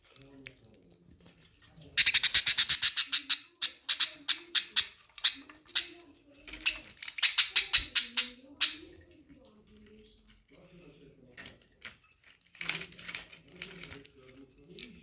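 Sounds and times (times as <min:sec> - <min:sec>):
budgies chirping: 0:02.0 - 0:08.9.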